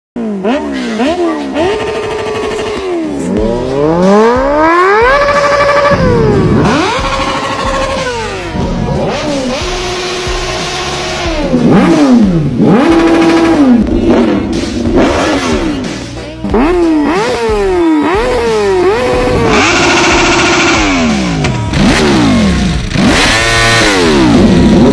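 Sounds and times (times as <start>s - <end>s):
motorcycle engines revving: 0.2s - 24.9s.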